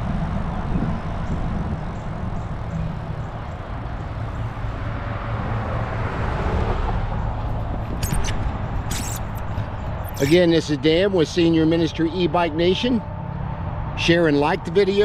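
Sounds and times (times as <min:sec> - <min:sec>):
wind buffeting microphone: 0:00.0 - 0:06.0
sharp clicks: 0:07.6 - 0:10.4.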